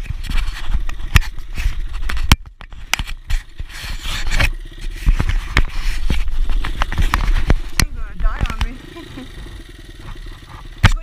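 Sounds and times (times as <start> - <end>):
scraping clicking and knocking: 0.0 - 8.8
dirt bike engine idling: 0.0 - 11.0
steady low rumble: 0.0 - 11.0.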